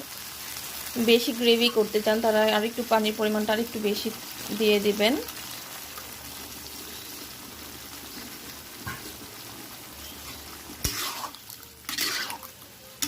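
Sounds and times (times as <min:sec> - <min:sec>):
gravy sizzling in a pan: 0:00.0 - 0:13.0
spatula scraping pan: 0:10.0 - 0:12.5.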